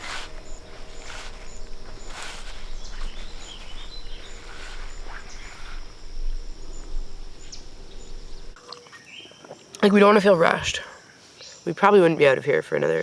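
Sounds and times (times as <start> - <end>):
wind on microphone: 0.0 - 8.6
short chirping calls: 0.0 - 9.4
insect drone: 0.0 - 11.7.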